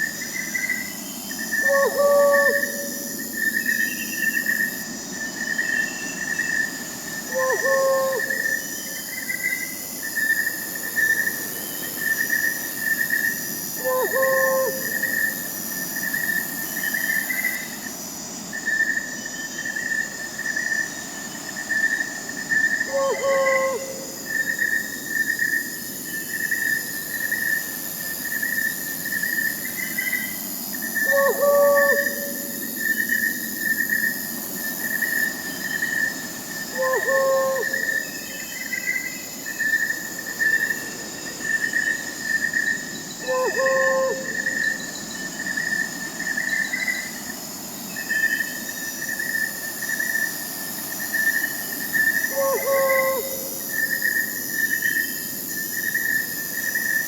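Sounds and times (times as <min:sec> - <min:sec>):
crickets chirping: 0:00.0 - 0:57.0
high insect trills: 0:00.0 - 0:57.0
owl hooting: 0:01.6 - 0:03.2, 0:07.3 - 0:08.6, 0:13.8 - 0:15.2, 0:22.9 - 0:24.2, 0:31.0 - 0:32.7, 0:36.7 - 0:38.1, 0:43.2 - 0:44.8, 0:52.2 - 0:53.9.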